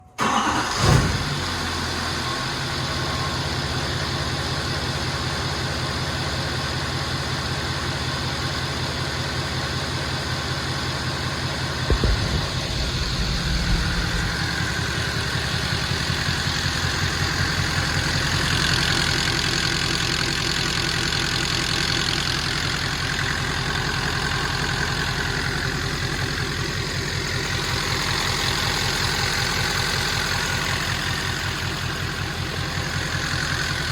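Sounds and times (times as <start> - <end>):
diesel engine idling with tick: 0.4 - 33.9
engine knocks: 11.9 - 18.8.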